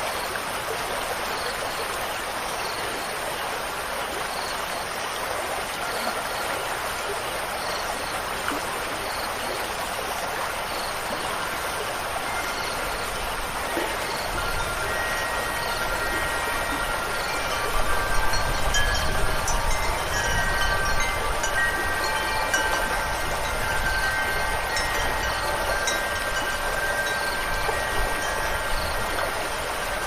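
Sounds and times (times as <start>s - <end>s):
flowing stream water: 0.0s - 30.0s
wind chimes ringing: 10.8s - 30.0s
low wind rumble: 11.4s - 30.0s.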